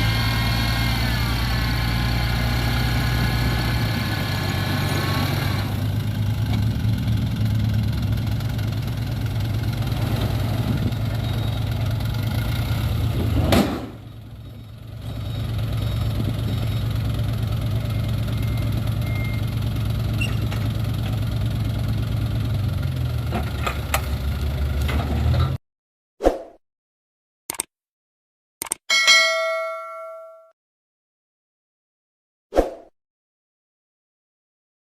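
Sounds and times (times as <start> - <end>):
diesel truck engine idling: 0.0 - 24.8.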